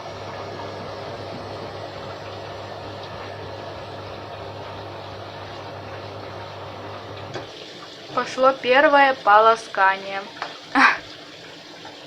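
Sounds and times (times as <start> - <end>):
washing machine humming: 0.0 - 12.0.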